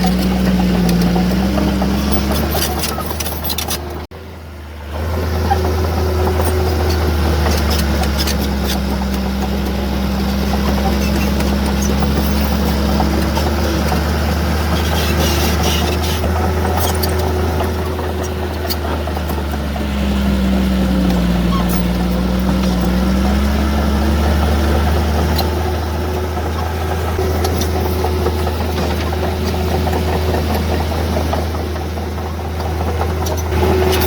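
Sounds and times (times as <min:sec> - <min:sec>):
heavy diesel engine humming: 0:00.0 - 0:34.0.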